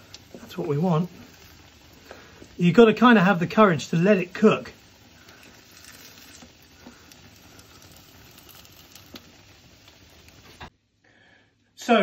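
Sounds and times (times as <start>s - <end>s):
food sizzling in a frying pan: 0.0s - 10.8s.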